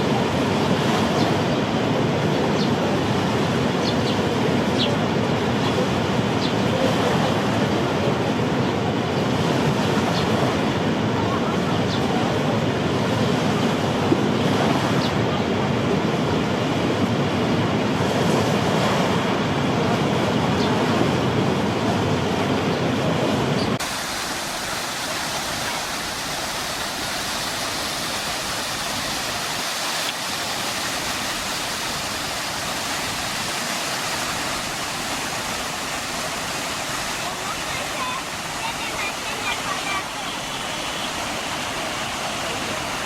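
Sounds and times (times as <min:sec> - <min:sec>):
higher hiss: 0:23.8 - 0:43.0.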